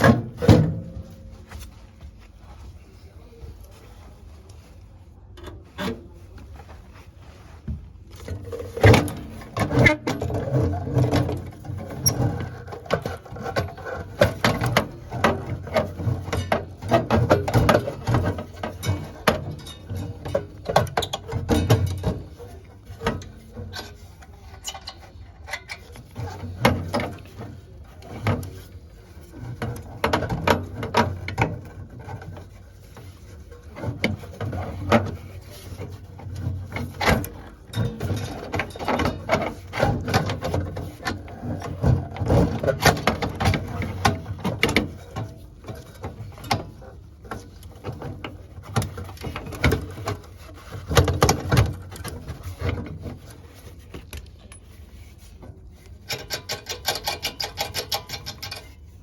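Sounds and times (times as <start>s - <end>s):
tools clicking and rattling: 29.4s - 55.1s, 55.7s - 59.0s.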